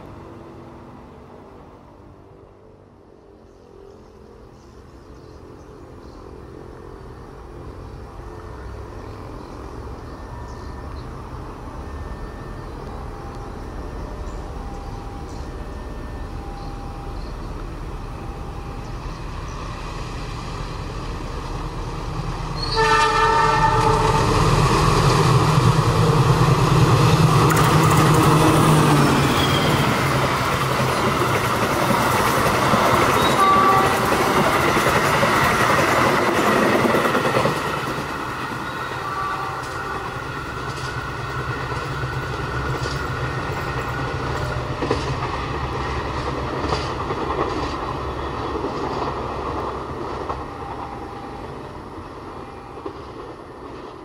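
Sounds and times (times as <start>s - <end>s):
train horn blast: 22.6s - 24.6s, 33.2s - 34.3s, 38.8s - 40.3s
wheels rolling on rails: 39.6s - 50.9s.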